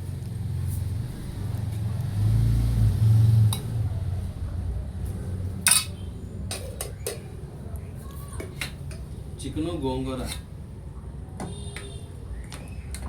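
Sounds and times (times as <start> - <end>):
dishes clinking: 5.6 - 7.3
clink against metal pot: 5.7 - 7.2.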